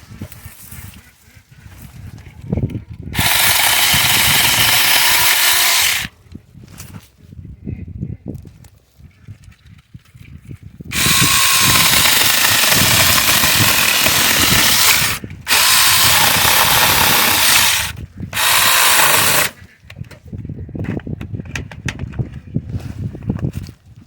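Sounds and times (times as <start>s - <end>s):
mini chainsaw running: 3.2s - 6.1s, 10.9s - 19.6s.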